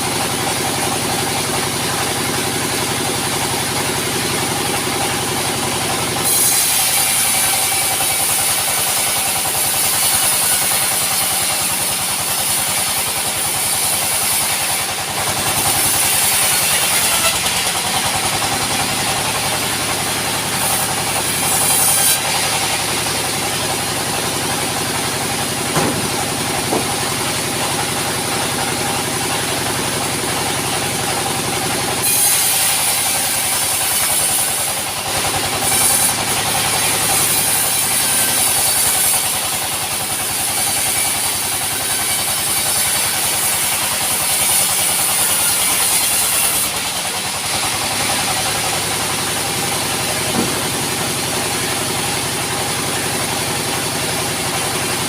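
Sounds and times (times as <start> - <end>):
sawmill machinery running: 0.0 - 55.0
short knocks: 25.7 - 27.2, 50.3 - 50.7.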